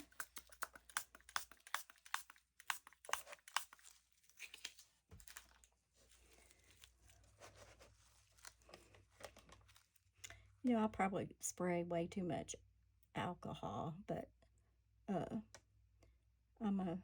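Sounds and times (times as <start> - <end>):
spray bottle squirting: 0.0 - 3.9.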